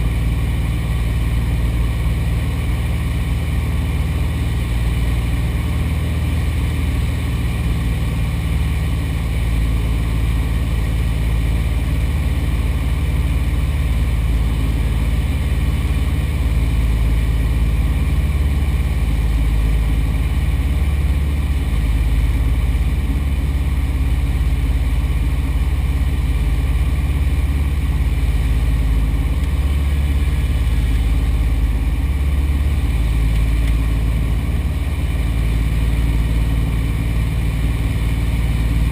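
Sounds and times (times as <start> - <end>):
small plane engine droning: 0.0 - 38.9.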